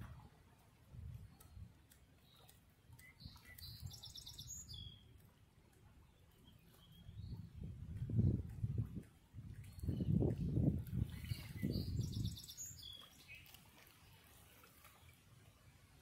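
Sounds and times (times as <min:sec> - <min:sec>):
bird trill: 0:02.2 - 0:05.1, 0:11.2 - 0:13.5.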